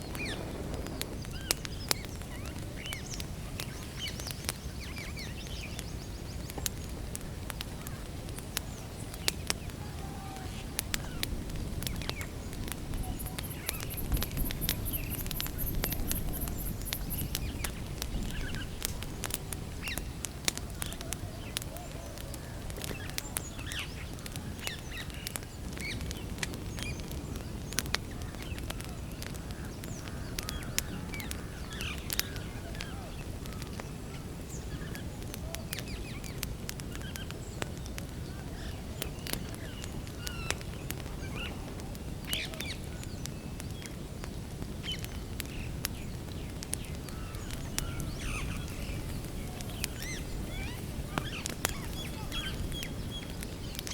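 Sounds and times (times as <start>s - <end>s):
birds chirping: 0.0s - 53.9s
campfire crackling and popping: 0.0s - 53.9s.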